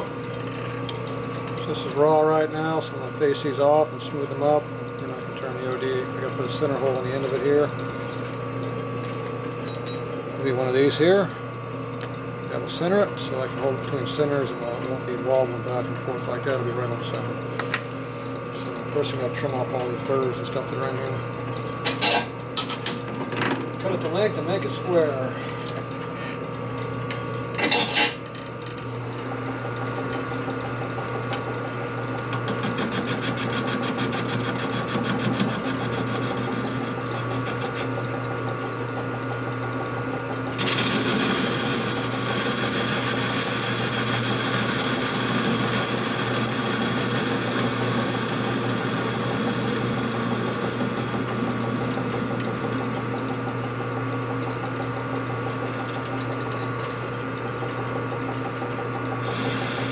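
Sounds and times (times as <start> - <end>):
metal lathe cutting steel: 32.3 - 38.6, 40.5 - 53.1, 59.2 - 59.9.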